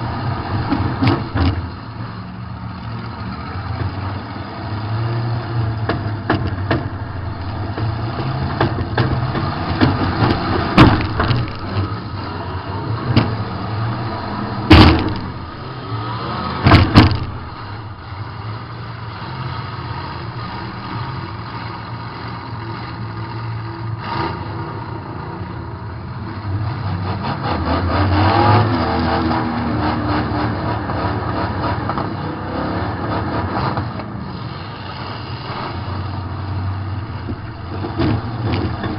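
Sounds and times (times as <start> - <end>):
car engine revving: 0.0 - 25.2, 26.3 - 38.9
car crash impacts: 5.9 - 12.3, 13.0 - 18.3, 37.0 - 38.9.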